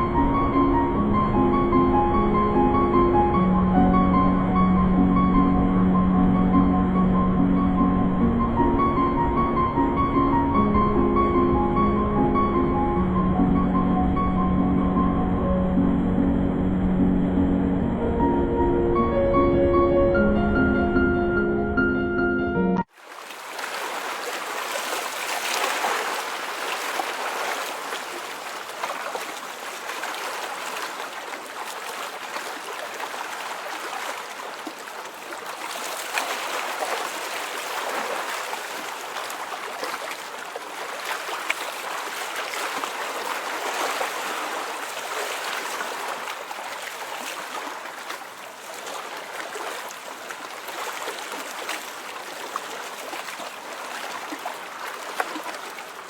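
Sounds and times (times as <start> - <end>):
stream water rushing: 22.9 - 56.0.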